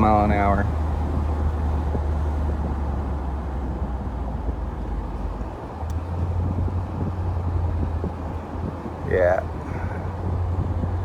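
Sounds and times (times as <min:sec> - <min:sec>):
car exhaust rumble: 0:00.0 - 0:11.0.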